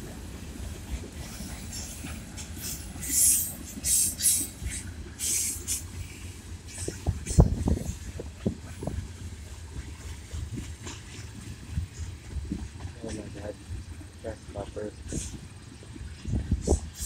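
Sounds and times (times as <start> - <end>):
freight train rumbling past: 0.0 - 17.0
high hissing bursts: 2.6 - 7.4.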